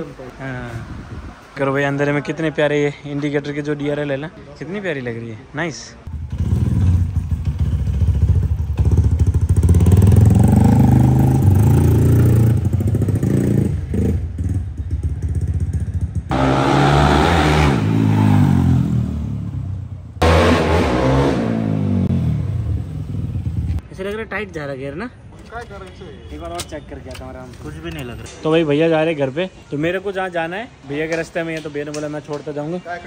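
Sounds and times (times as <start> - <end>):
motorcycle engine accelerating: 6.1 - 23.8.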